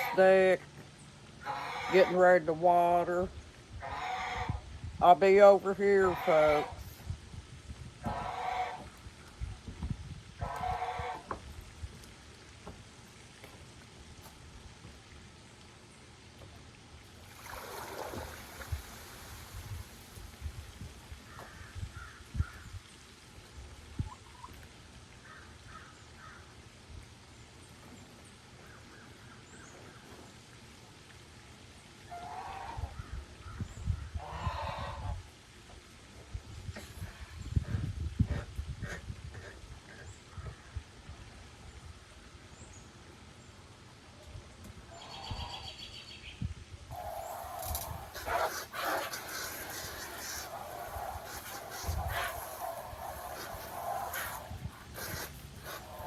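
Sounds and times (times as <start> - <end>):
geese honking: 0.0 - 0.6, 1.4 - 2.9, 3.8 - 4.7, 5.7 - 7.0, 8.0 - 9.0, 10.4 - 11.4, 32.1 - 33.0, 46.9 - 56.0.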